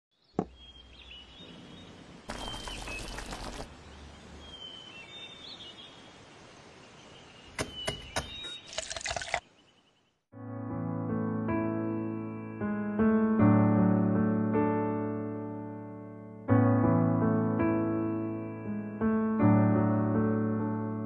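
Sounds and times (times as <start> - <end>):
birds chirping: 0.1 - 10.2
faint outdoor hiss: 0.2 - 10.2
liquid being poured: 2.3 - 3.7, 8.6 - 9.5.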